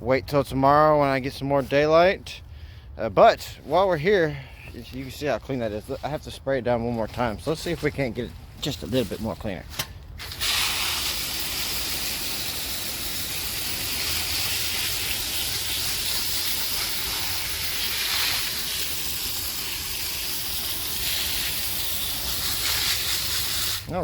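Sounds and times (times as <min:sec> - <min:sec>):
water spraying onto engine block: 0:10.2 - 0:24.0.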